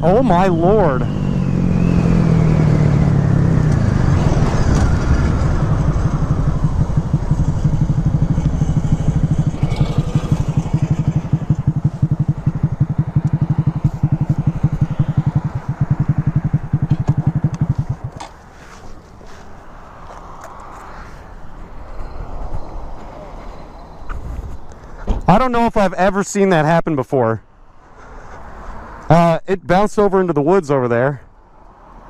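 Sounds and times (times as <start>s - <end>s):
motorcycle engine idling: 1.1s - 19.4s.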